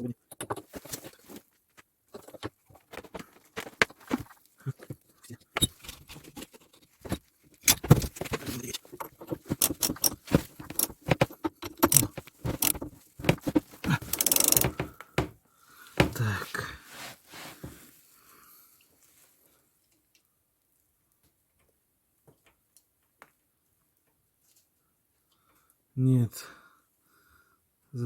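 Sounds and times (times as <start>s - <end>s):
rapid rasping of wrench: 7.7s - 15.3s
wrench clicking on bolt: 9.6s - 10.9s, 14.1s - 14.7s.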